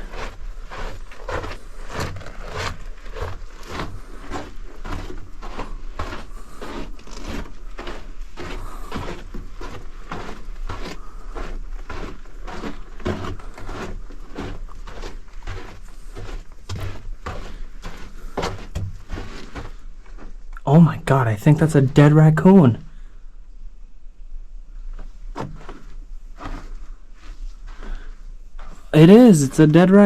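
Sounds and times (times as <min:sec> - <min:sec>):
footsteps in a tunnel: 0:00.0 - 0:30.0.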